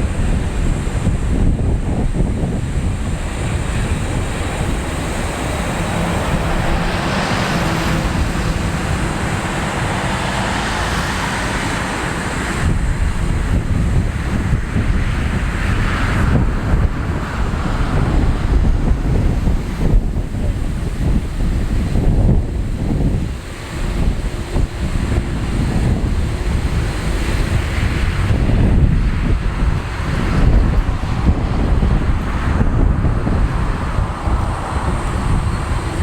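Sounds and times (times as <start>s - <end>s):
distant jet engines rumbling: 0.0s - 36.0s
wind buffeting microphone: 0.0s - 36.0s.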